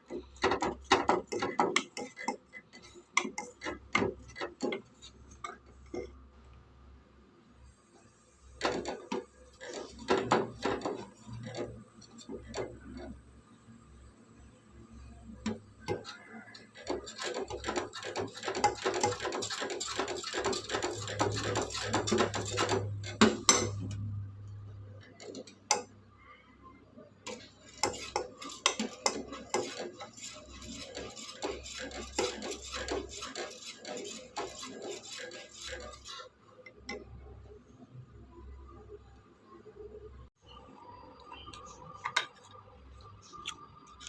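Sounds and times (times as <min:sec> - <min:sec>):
utensil beating against a bowl: 0:00.0 - 0:04.9, 0:15.4 - 0:24.0, 0:27.3 - 0:36.2.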